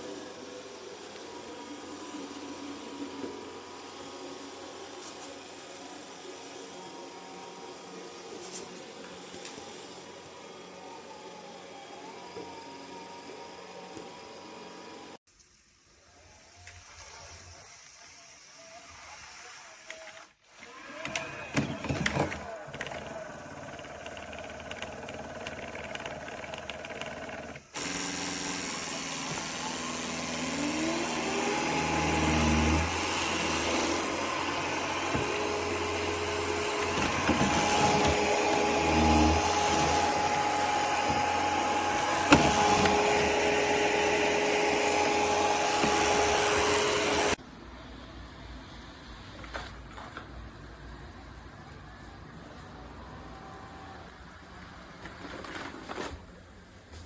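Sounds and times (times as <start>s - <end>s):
motor whine: 0.0s - 15.2s, 27.8s - 47.4s
robot vacuum suction rush: 0.0s - 15.2s, 28.9s - 51.0s.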